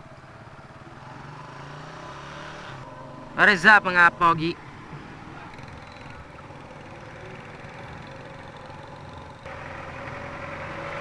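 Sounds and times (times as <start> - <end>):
motorcycle engine idling: 4.6 - 10.4.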